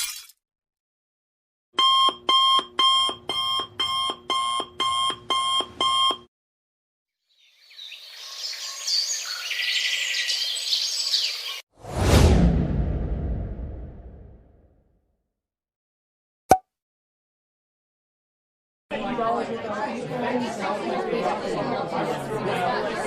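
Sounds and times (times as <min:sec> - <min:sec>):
electronic alarm beeps: 0:01.8 - 0:06.3
deep boom: 0:11.8 - 0:14.7.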